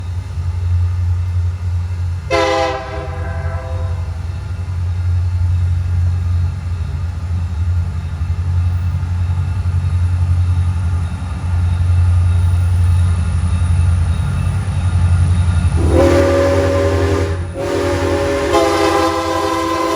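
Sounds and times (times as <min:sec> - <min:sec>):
diesel locomotive engine rumble: 0:00.0 - 0:19.9
train horn blast: 0:02.3 - 0:04.2, 0:15.8 - 0:19.9.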